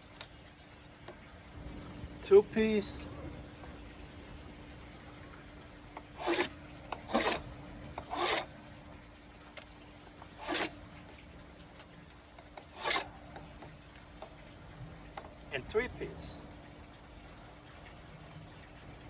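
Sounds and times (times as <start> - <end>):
faint steady hum: 0.0 - 19.0
rasping cloth cuts: 6.2 - 7.4, 8.0 - 8.5, 10.4 - 10.8, 12.6 - 13.1.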